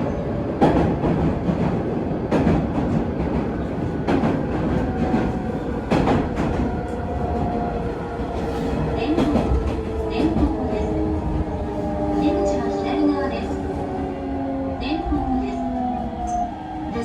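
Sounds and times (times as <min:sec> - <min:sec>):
steady train rumble: 0:00.0 - 0:17.0
train wheels knocking on rail joints: 0:00.6 - 0:07.6.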